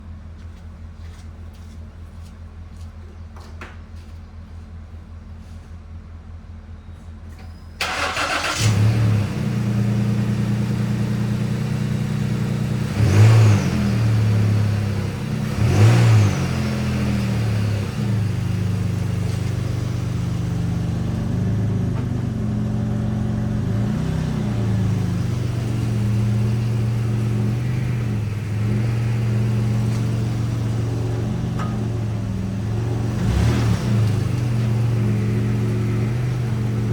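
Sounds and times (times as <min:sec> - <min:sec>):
car engine starting and idling: 0:07.2 - 0:36.9.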